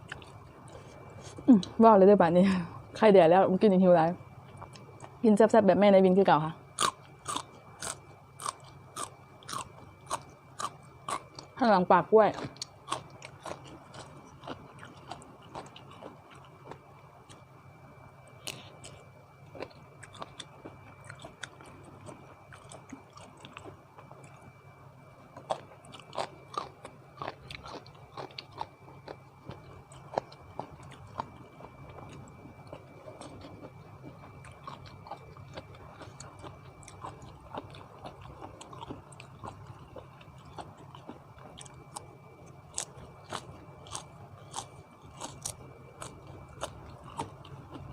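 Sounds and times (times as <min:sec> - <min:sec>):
person chewing crunchy food: 0:00.0 - 0:01.7, 0:06.7 - 0:11.6, 0:12.3 - 0:17.5, 0:18.2 - 0:47.9
faint high whine: 0:00.0 - 0:47.9.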